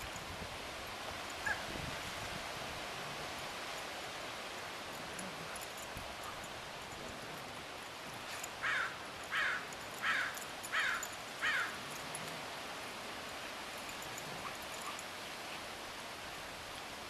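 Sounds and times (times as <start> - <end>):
distant bird calls falling in pitch: 8.6 - 11.8.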